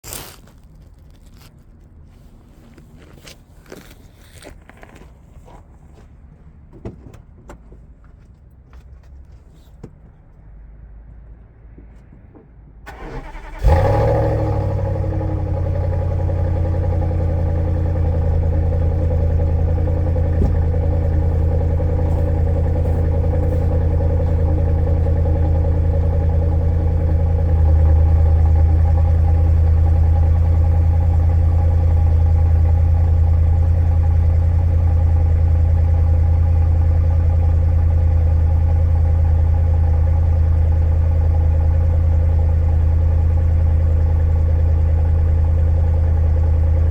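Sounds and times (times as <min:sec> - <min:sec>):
starter motor cranking: 0:12.9 - 0:14.6
car engine idling: 0:12.9 - 0:46.9.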